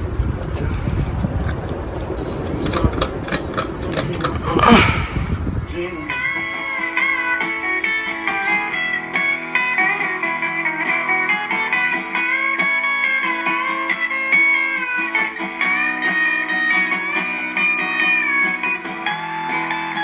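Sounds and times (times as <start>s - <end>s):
plucked guitar music: 6.0s - 20.0s.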